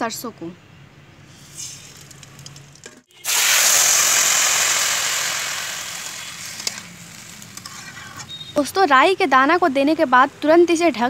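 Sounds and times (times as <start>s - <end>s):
hot oil sizzling loudly: 1.3s - 8.0s.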